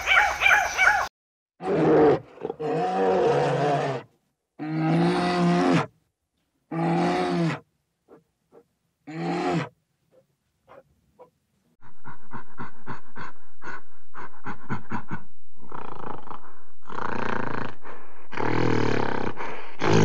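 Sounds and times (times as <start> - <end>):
gorilla rough roars: 1.6 - 5.9, 6.7 - 7.6, 9.0 - 9.8, 15.6 - 20.0
gorilla grunts: 11.8 - 20.0.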